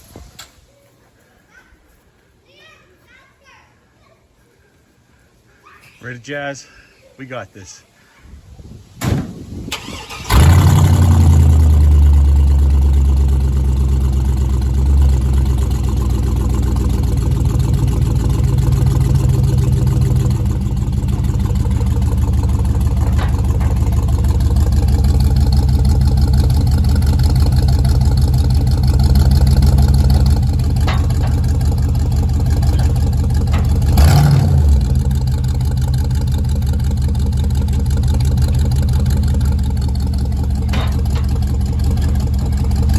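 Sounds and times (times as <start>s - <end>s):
tow vehicle engine rumbling: 9.7s - 42.9s.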